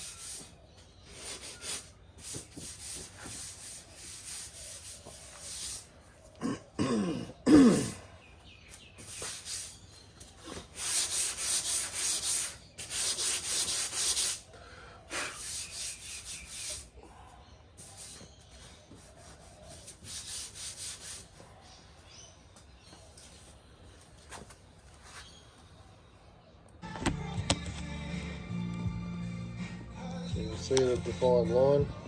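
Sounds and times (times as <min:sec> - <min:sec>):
sandpaper rubbing on car panel: 0:01.2 - 0:05.9, 0:09.0 - 0:09.8, 0:10.6 - 0:14.4, 0:15.3 - 0:16.9, 0:18.9 - 0:21.4.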